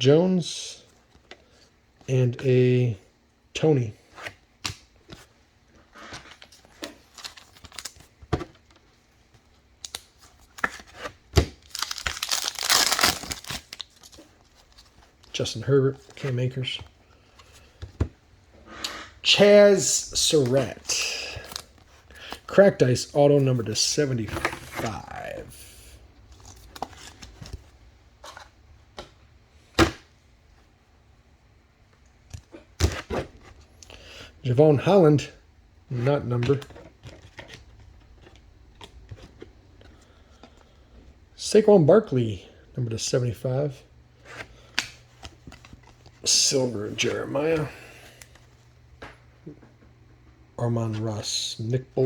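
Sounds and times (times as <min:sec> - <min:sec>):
foil card pack tearing open: 0:11.6 - 0:14.1.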